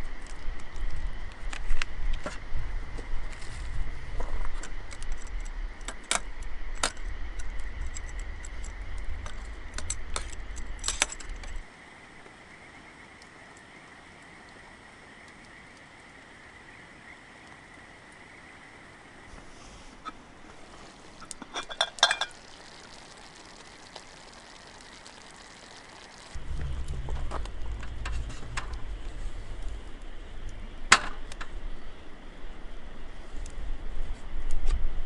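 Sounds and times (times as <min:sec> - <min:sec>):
low rumble: 0:02.0 - 0:11.7, 0:26.3 - 0:34.0
metal cookware clinking: 0:21.4 - 0:22.4.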